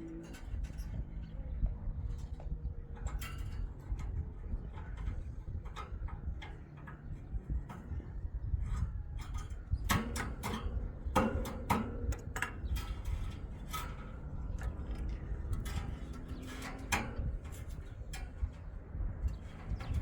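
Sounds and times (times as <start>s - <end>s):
sharp knocks and clicks: 9.8s - 12.8s.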